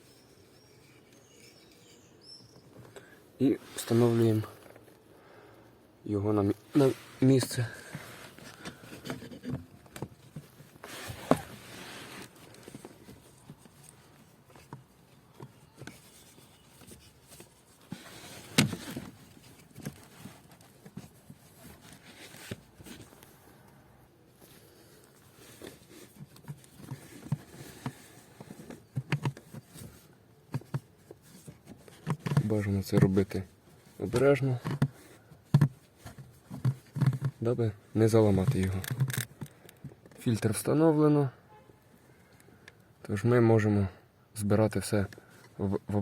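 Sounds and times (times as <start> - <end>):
filter scraping against plastic: 0.1 - 4.8, 6.6 - 23.2, 25.0 - 39.8.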